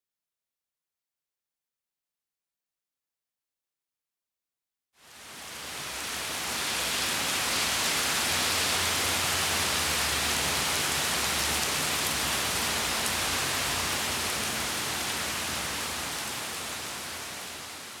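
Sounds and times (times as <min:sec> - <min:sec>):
steady rain falling: 0:05.0 - 0:18.0.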